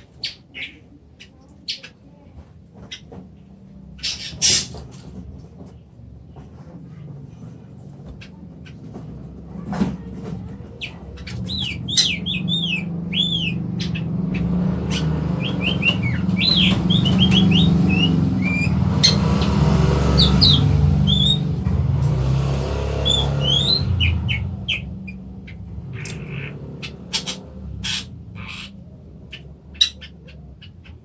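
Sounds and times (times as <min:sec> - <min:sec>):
bird whistling and chirping: 0:10.8 - 0:19.2, 0:20.2 - 0:21.5, 0:23.0 - 0:28.7.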